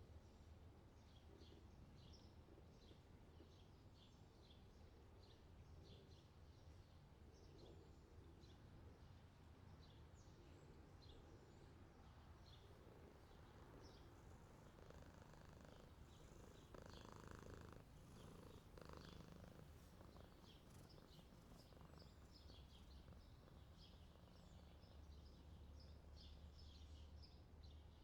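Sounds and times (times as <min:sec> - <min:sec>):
small birds chirping faintly: 0:12.1 - 0:28.0
cat purring: 0:12.8 - 0:25.9.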